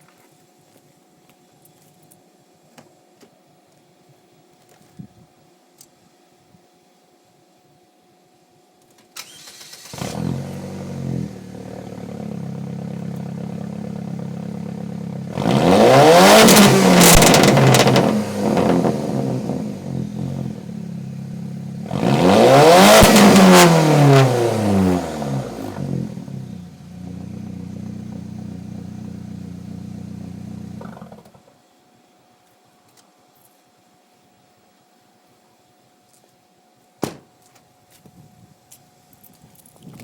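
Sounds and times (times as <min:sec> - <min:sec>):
car engine starting and revving: 0:09.2 - 0:31.2.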